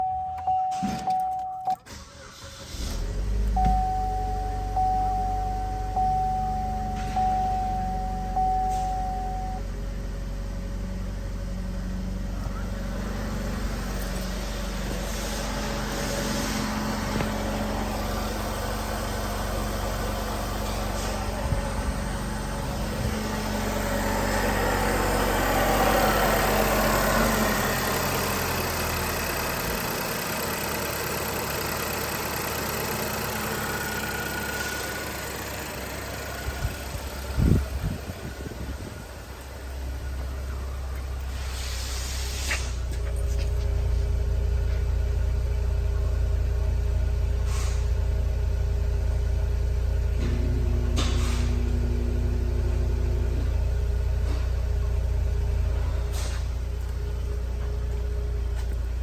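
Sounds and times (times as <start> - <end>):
dashboard warning chime beeping: 0.0 - 1.9, 3.5 - 9.7
car engine starting and idling: 0.0 - 59.0.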